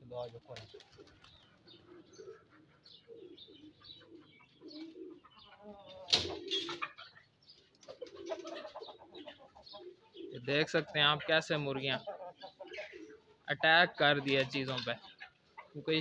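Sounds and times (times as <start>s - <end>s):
small birds chirping: 0.0s - 16.0s
pigeon cooing: 0.5s - 16.0s.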